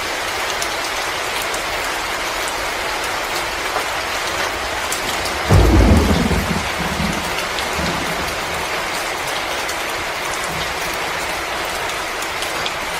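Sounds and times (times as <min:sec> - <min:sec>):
deep rumble: 0:05.0 - 0:08.7.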